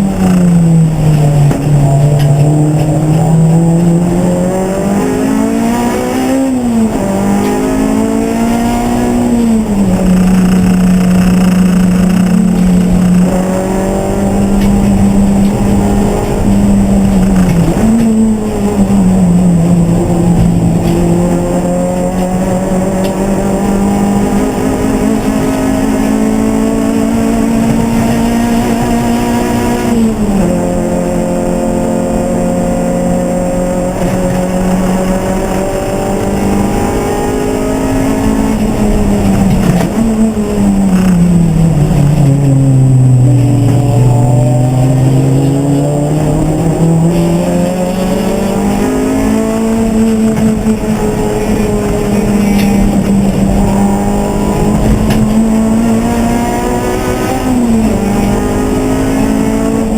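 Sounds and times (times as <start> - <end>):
race car engine: 0.0 - 59.9.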